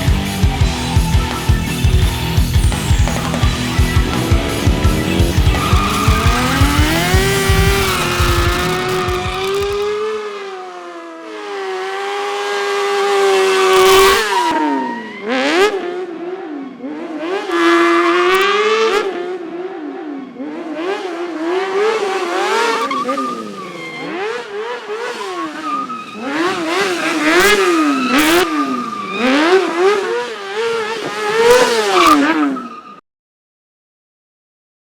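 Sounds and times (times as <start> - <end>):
engine revving hard: 0.0 - 10.6, 11.4 - 16.0, 20.4 - 32.6
tyre squeal: 1.2 - 9.9, 22.1 - 24.5, 25.1 - 33.0.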